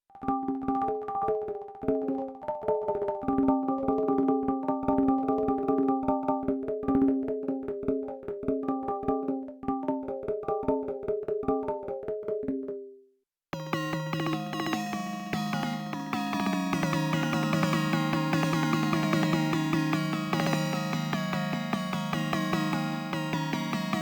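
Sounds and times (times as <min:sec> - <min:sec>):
percussion synthesizer rhythm pattern: 0:13.6 - 0:24.0.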